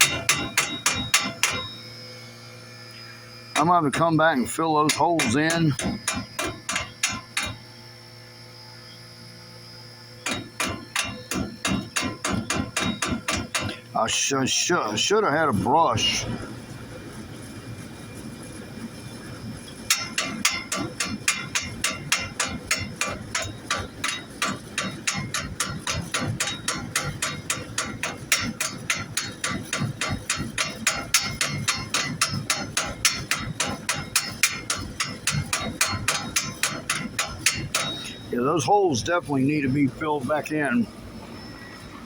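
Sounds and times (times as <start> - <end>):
hammer tapping on steel: 0.0 - 1.7, 4.9 - 7.6, 10.3 - 13.8, 19.9 - 38.2.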